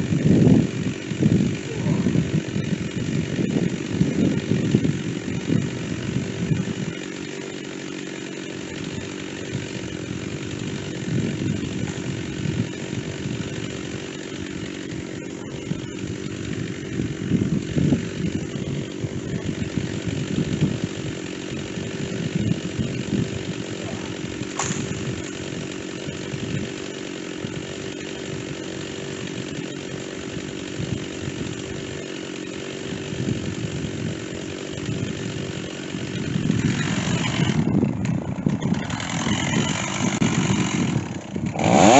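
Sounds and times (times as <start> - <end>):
chainsaw cutting wood: 0.0 - 41.9
sharp click: 24.5 - 25.0.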